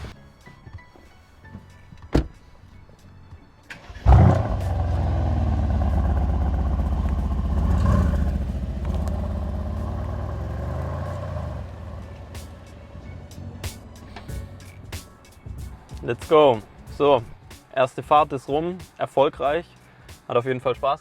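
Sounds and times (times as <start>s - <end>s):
car engine starting and idling: 3.6s - 14.4s.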